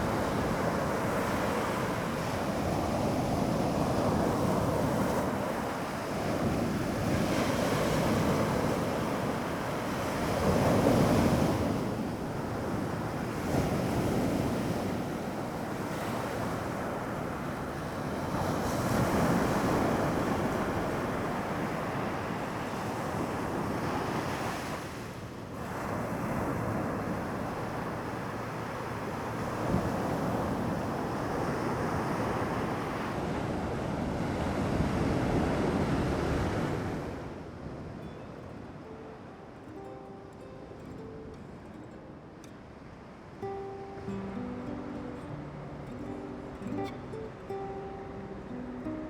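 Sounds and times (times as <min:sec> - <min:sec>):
sea waves breaking on beach: 0:00.0 - 0:38.0.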